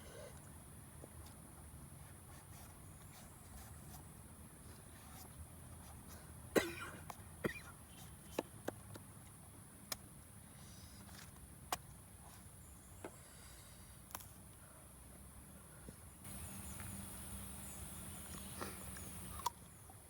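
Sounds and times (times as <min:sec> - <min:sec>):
person coughing: 0:06.5 - 0:07.7
steady high hiss: 0:16.2 - 0:19.4.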